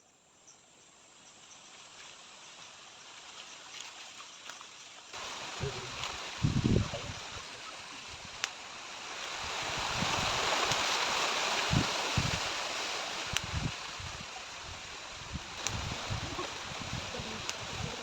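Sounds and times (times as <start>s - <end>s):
wind through forest trees: 0.0s - 18.0s
wind buffeting microphone: 5.5s - 8.4s, 9.4s - 10.8s, 11.6s - 12.6s, 13.3s - 18.0s.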